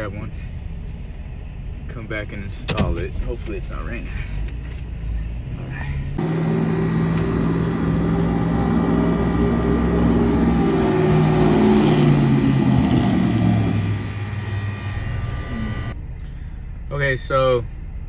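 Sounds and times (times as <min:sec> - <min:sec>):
van engine running: 0:06.2 - 0:16.0.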